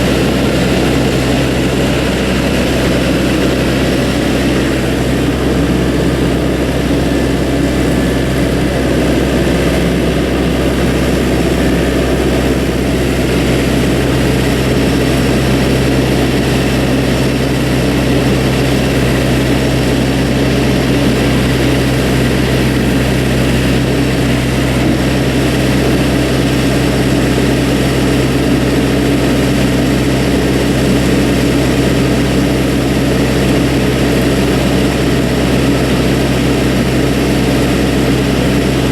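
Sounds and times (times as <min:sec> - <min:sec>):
loader engine humming: 0:00.0 - 0:38.9.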